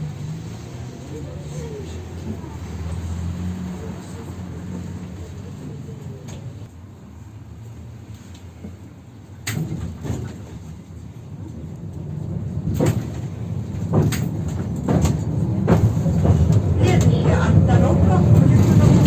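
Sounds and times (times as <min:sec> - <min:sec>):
tram rumbling: 0:00.0 - 0:19.0
wheels clacking over rail joints: 0:09.4 - 0:19.0
sliding doors knocking shut: 0:12.6 - 0:17.2.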